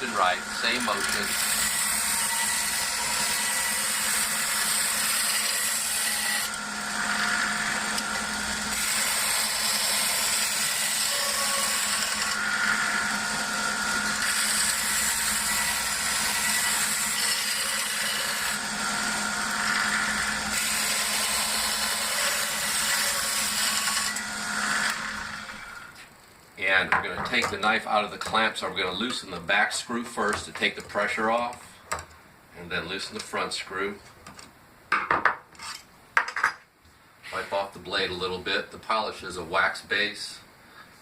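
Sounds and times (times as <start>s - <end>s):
belt sharpener running: 0.0s - 25.8s.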